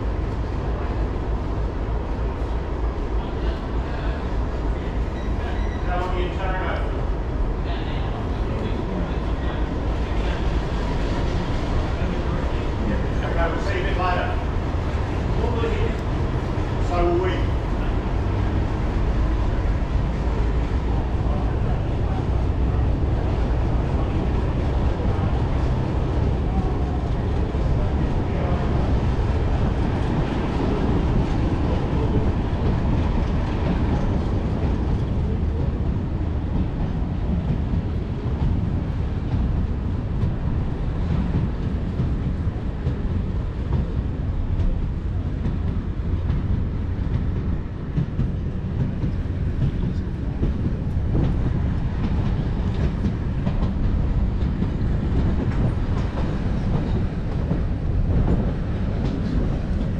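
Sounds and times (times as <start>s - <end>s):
train low rumble: 0.0s - 59.9s.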